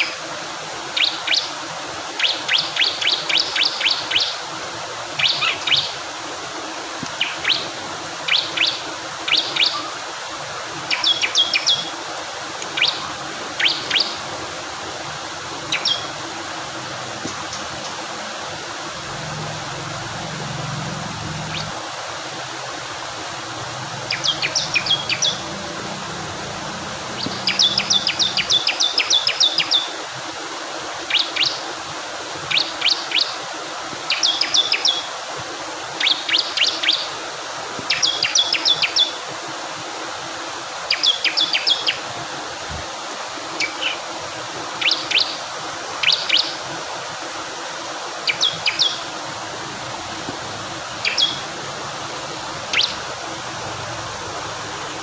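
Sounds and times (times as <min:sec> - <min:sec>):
flowing water: 0:00.0 - 0:55.0
bird singing high chipping notes: 0:15.7 - 0:16.2, 0:19.1 - 0:21.8, 0:24.0 - 0:29.8.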